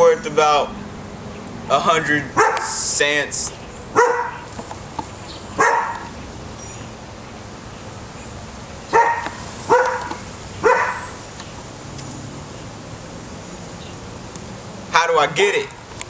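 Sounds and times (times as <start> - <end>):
dog barking: 2.4 - 2.8, 3.9 - 4.5, 5.6 - 6.1, 8.9 - 11.2.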